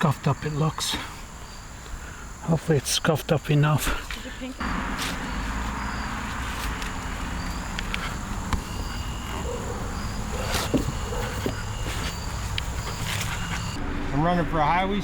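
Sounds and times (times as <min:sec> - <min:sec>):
insects chirping: 0:00.0 - 0:13.8.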